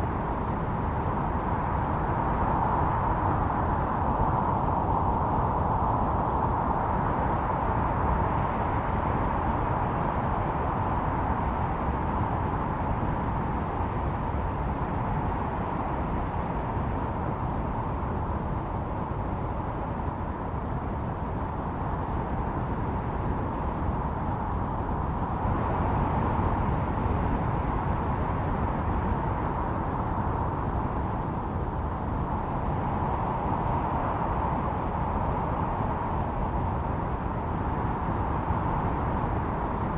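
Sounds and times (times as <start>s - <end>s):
blizzard wind blowing: 0.0s - 39.9s.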